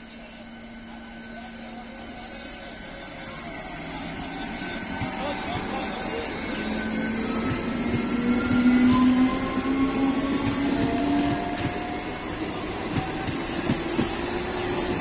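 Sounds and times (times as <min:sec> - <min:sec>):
train wheels clicking on rail joints: 0:07.3 - 0:09.3, 0:10.4 - 0:12.0, 0:12.9 - 0:15.0.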